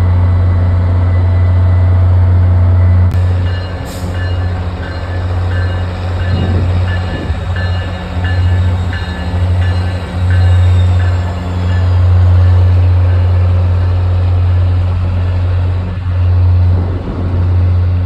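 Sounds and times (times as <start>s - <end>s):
diesel train engine humming: 0.0s - 18.0s
train bell ringing: 2.8s - 14.4s.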